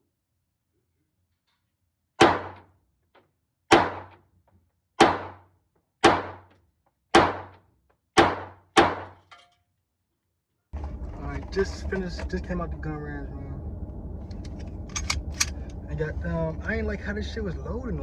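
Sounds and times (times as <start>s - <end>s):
pistol shots with echo: 2.2s - 2.6s, 3.7s - 4.2s, 5.0s - 5.4s, 6.0s - 6.4s, 7.2s - 7.6s, 8.2s - 9.2s.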